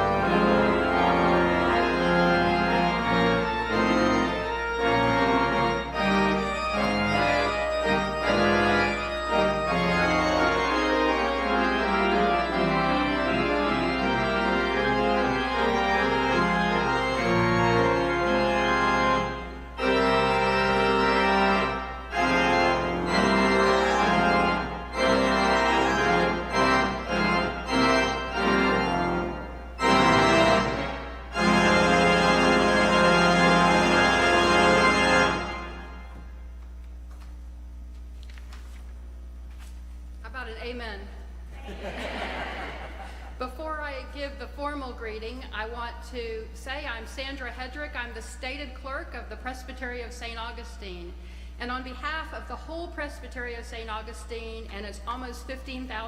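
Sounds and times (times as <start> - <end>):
organ playing held chords: 0.0 - 36.8.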